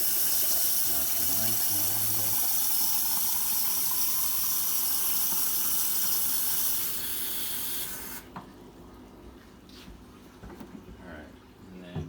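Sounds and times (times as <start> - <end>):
water running into container: 0.0 - 8.4.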